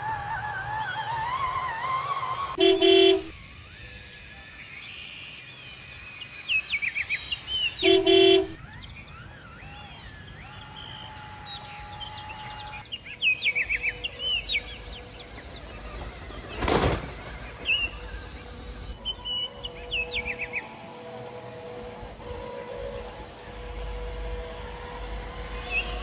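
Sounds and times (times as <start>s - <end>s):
steady background hum: 0.0s - 26.0s
short horn toot: 2.6s - 3.3s
bird-like chirps: 3.7s - 20.7s.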